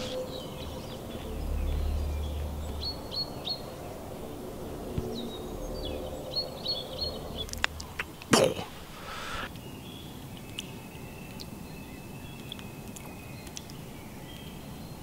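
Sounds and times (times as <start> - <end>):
small bird chirping: 0.0 - 8.3, 9.0 - 15.0
low outdoor rumble: 0.0 - 9.5.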